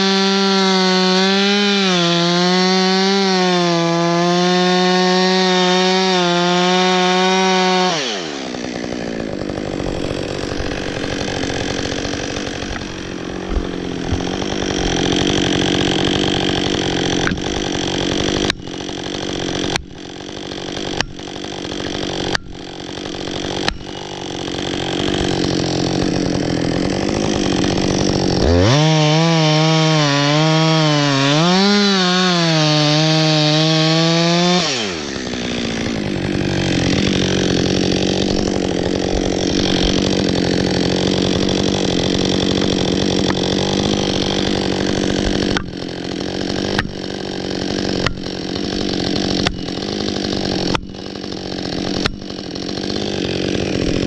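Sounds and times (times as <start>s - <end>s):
chainsaw running: 0.0s - 54.0s.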